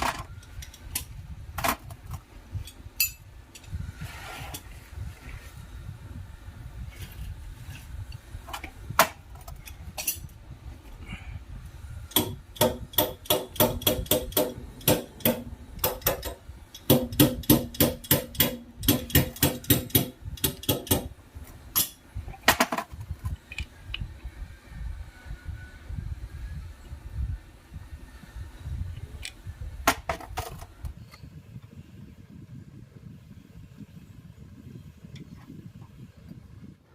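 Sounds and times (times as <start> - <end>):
hammer on metal: 12.1 - 21.1.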